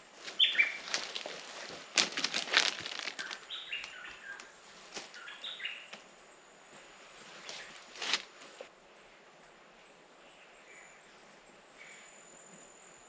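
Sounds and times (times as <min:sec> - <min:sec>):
rustling in dry leaf litter: 0:00.0 - 0:05.6, 0:07.1 - 0:08.7
bird calling: 0:00.4 - 0:01.3.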